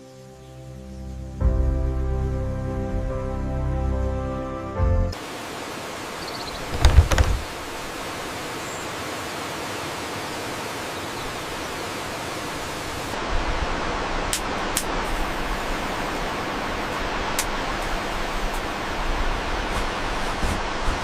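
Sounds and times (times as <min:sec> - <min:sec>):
waterfall rushing: 0:05.2 - 0:21.0
cluster of knocks: 0:06.7 - 0:07.5.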